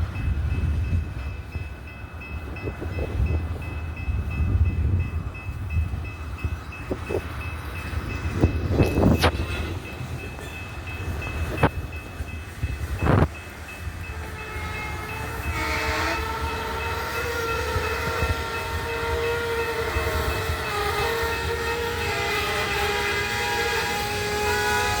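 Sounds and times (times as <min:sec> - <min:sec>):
train couplers clanking: 0:00.0 - 0:25.0
train rumbling: 0:00.0 - 0:25.0
diesel locomotive horn: 0:14.0 - 0:25.0.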